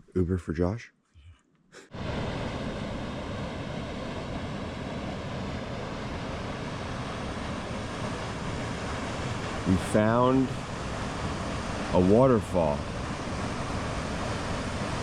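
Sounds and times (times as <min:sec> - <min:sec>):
waterfall rushing: 0:03.8 - 0:15.0.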